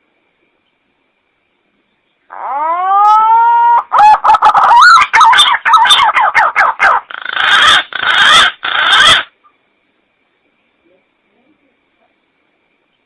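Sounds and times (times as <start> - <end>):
pigeon calling: 2.3 - 9.3.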